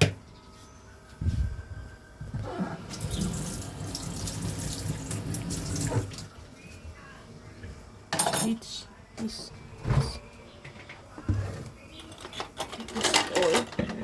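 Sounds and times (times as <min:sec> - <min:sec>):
kitchen tap running: 0:02.9 - 0:06.3.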